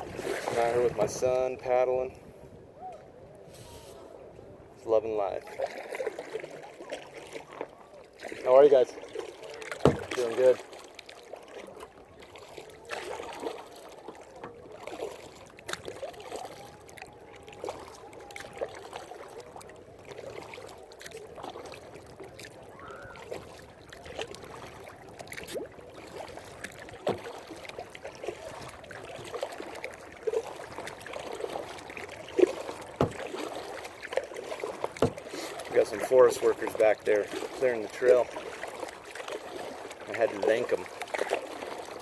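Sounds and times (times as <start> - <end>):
paddle splashing water: 0.0 - 42.0
small knocks: 35.0 - 35.2.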